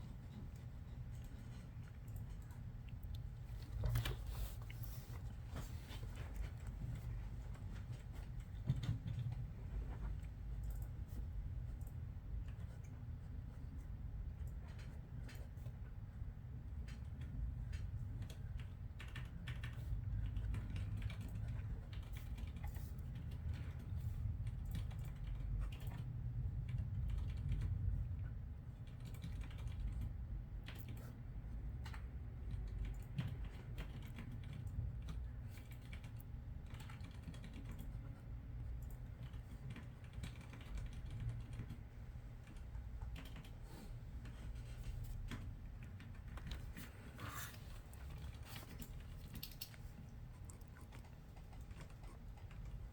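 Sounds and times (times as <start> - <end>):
low steady hum: 0.0 - 52.9
keyboard typing: 31.8 - 38.1, 38.7 - 41.8, 42.4 - 43.6.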